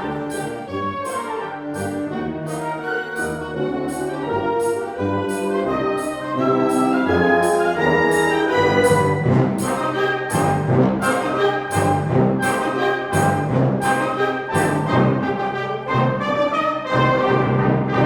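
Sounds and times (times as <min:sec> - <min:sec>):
wind band playing: 0:00.0 - 0:18.0
steady percussion beat: 0:01.8 - 0:14.0.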